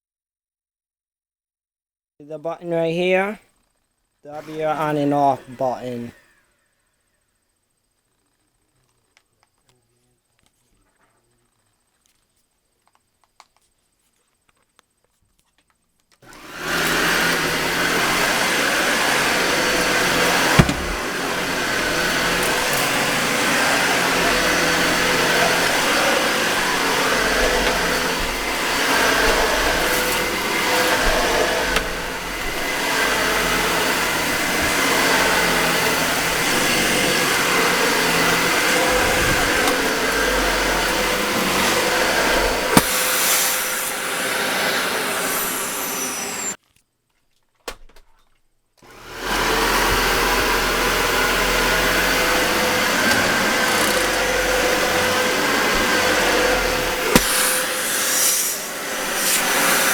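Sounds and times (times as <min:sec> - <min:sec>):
vacuum cleaner running on carpet: 0:04.4 - 0:06.4, 0:16.2 - 0:46.6, 0:48.9 - 0:59.9.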